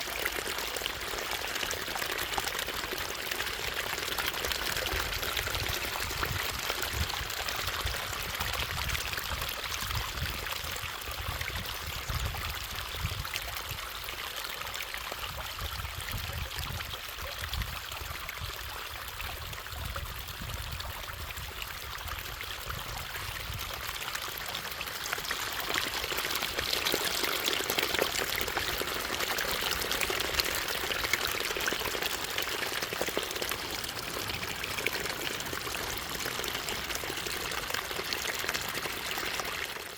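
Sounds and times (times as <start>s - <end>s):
stream water rushing: 23.9s - 39.9s.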